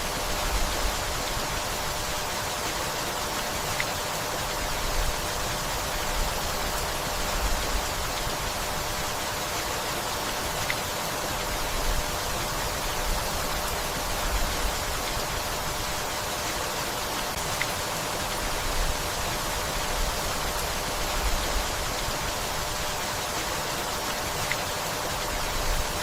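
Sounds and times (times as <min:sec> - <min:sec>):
steady rainfall: 0:00.0 - 0:26.0.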